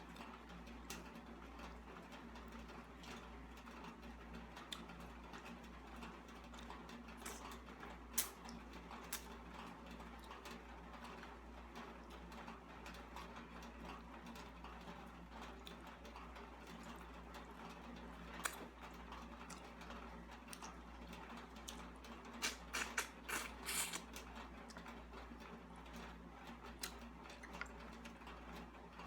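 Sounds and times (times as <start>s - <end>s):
faint eating sounds: 6.9s - 10.2s, 15.1s - 28.7s.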